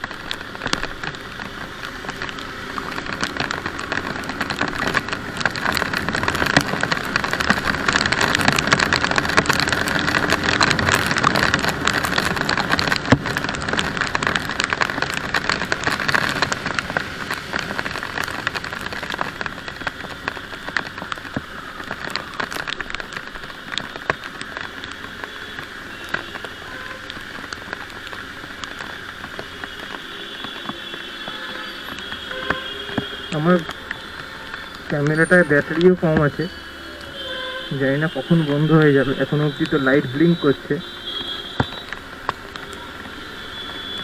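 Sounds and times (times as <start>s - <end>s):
rain drops pattering: 0.0s - 44.0s
traffic: 0.0s - 44.0s.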